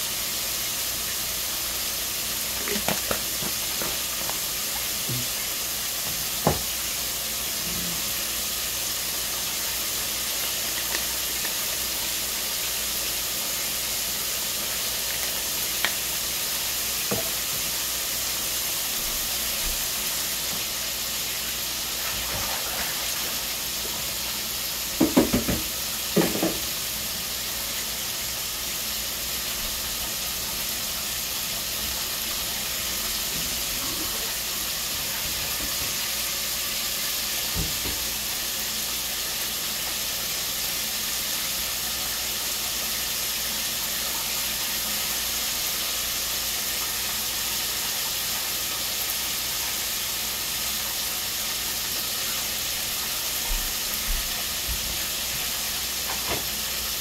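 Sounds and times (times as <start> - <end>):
chicken sizzling in hot oil: 0.0 - 57.0
cookware knocking: 25.0 - 26.6.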